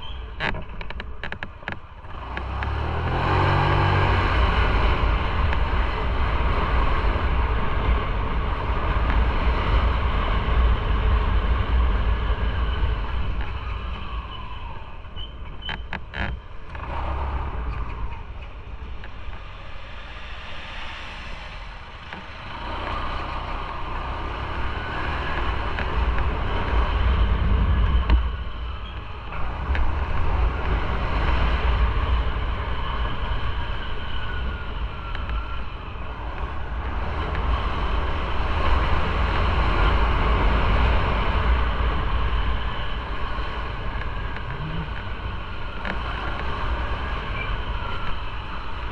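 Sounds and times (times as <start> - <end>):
wind noise: 0.0 - 48.9
motorcycle engine: 36.6 - 48.8.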